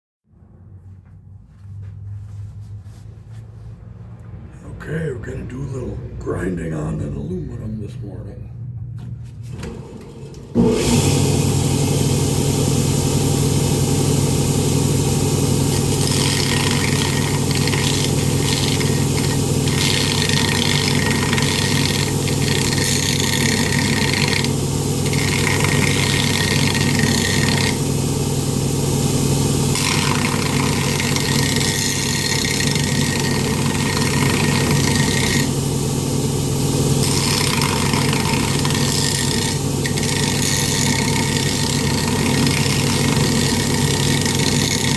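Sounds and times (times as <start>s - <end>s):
power grinder grinding metal: 10.6s - 44.9s.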